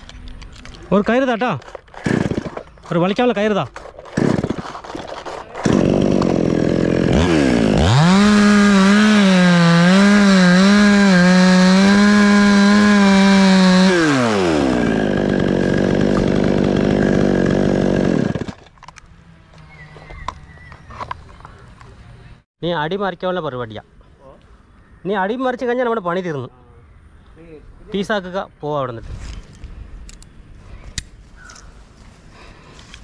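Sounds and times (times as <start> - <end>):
chainsaw cutting wood: 1.6 - 3.0, 3.8 - 18.6.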